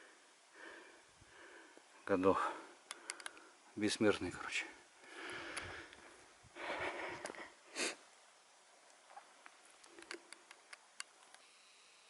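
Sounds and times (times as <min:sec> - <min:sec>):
faint small clicks: 0:02.8 - 0:03.5, 0:08.8 - 0:11.5
person sniffing: 0:06.8 - 0:08.0.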